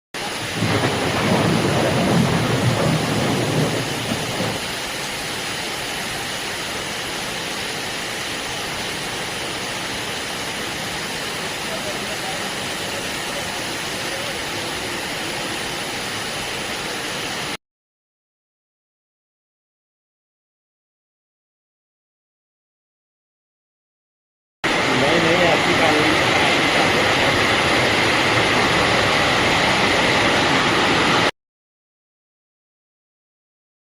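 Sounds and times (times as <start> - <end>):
thunder rumble: 0.2 - 5.0
heavy rain: 0.2 - 17.6, 24.6 - 31.3.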